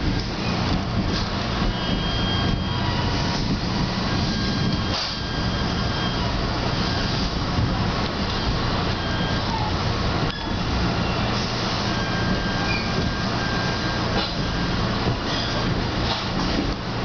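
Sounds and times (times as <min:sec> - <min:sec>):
train rumble and rail noise: 0:00.0 - 0:17.0.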